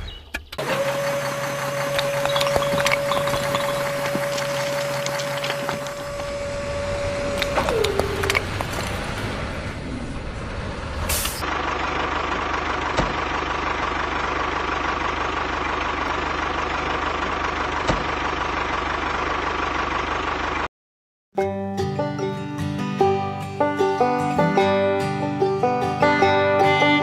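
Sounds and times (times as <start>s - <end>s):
engine running with high whine: 0.0s - 20.7s
small motor whining: 0.6s - 9.0s.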